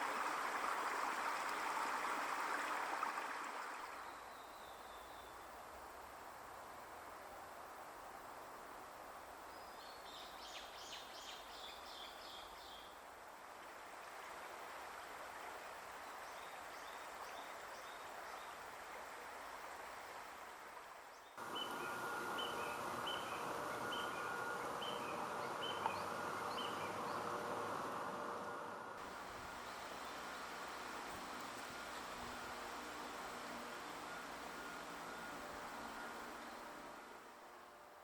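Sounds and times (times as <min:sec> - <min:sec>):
small birds calling: 0:21.3 - 0:27.8
steady high whine: 0:21.4 - 0:37.9
steady rushing hiss: 0:21.4 - 0:38.0.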